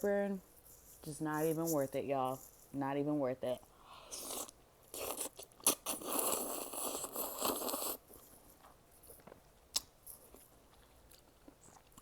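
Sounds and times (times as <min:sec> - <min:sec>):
person eating noodles: 0:03.9 - 0:08.3
quiet chewing: 0:03.9 - 0:12.0.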